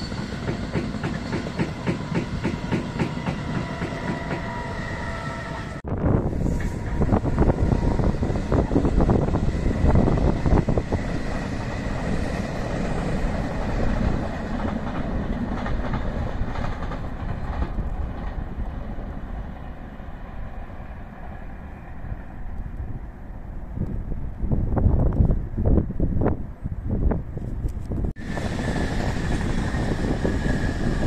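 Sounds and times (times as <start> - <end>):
train rolling past: 0.0 - 27.1, 28.1 - 31.0
wheels clattering over rail joints: 11.9 - 19.0.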